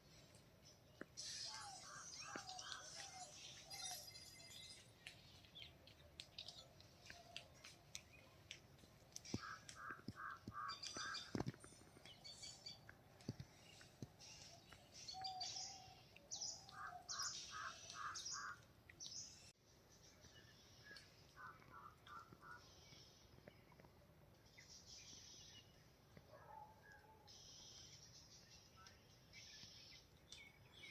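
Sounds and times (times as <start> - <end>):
birds chirping and calling: 1.0 - 7.4, 9.2 - 19.5.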